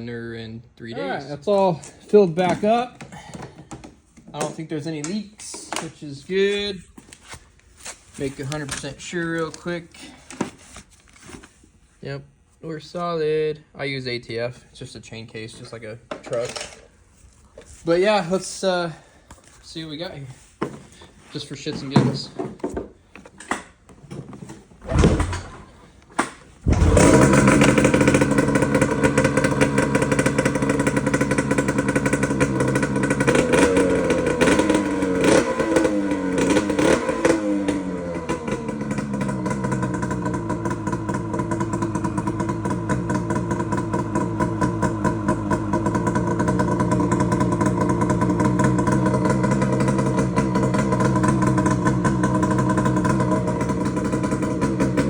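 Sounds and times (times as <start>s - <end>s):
two-stroke engine starting attempts: 24.8s - 55.0s
two-stroke engine revving and idling: 26.6s - 55.0s.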